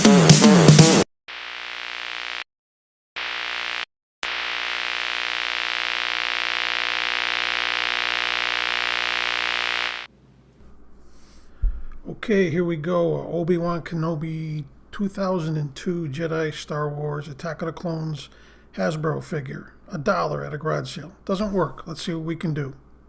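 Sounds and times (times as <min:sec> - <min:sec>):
electrical static hiss and hum: 0:01.3 - 0:02.5, 0:03.2 - 0:10.1.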